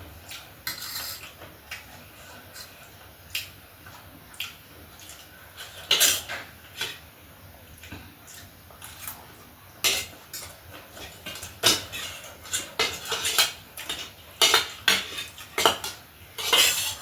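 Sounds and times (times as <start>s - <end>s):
cutlery clinking on a plate: 11.0s - 17.0s.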